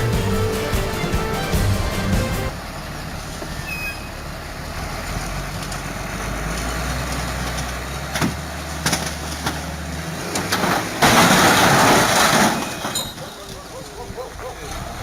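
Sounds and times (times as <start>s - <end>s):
heavy vehicle engine humming: 0.0s - 11.0s.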